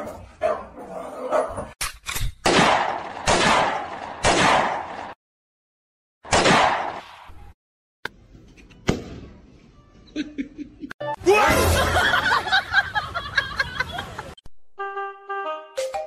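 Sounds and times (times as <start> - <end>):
people laughing loudly: 10.2 - 14.4.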